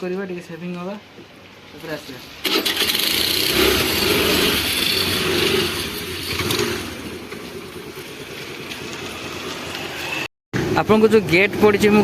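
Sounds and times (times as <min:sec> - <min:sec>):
motor scooter engine running: 0:02.5 - 0:10.2.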